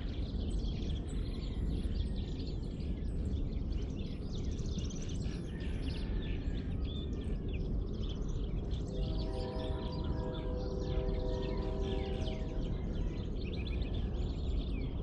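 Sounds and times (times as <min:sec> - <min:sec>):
small birds chirping and singing: 0:00.0 - 0:15.0.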